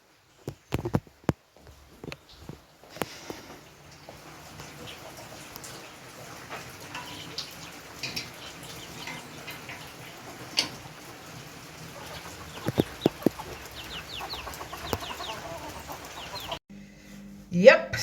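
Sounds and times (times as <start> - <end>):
chickens clucking: 2.0 - 16.6
high chirps: 12.5 - 16.6.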